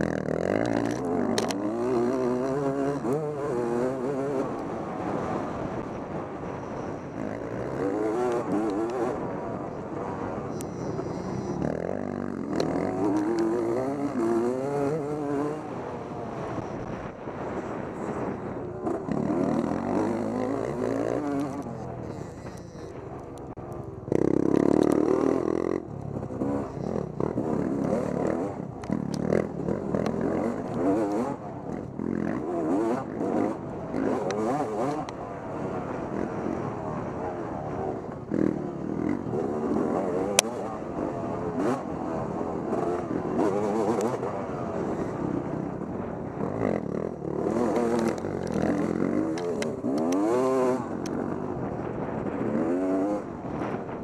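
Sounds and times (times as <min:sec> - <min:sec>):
clatter: 0:00.0 - 0:04.7, 0:18.8 - 0:35.2, 0:46.2 - 0:54.0
motorcycle engine revving: 0:00.0 - 0:54.0.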